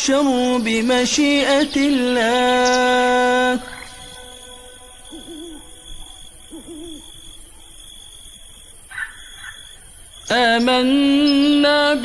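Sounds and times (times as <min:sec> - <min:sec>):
owl hooting: 0:01.6 - 0:10.7.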